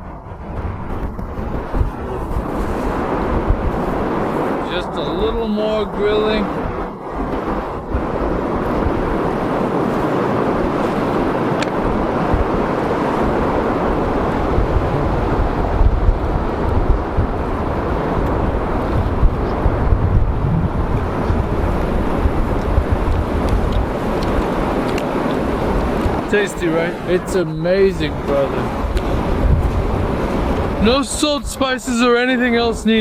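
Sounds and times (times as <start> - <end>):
wind buffeting microphone: 0.0 - 33.0
fast-flowing water rushing: 1.3 - 33.0.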